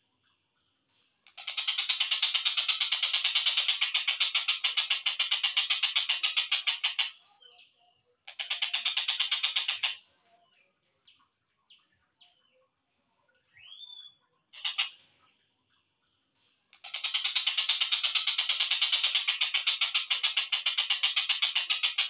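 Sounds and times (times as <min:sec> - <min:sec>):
bird rattling chatter: 0:01.4 - 0:07.1.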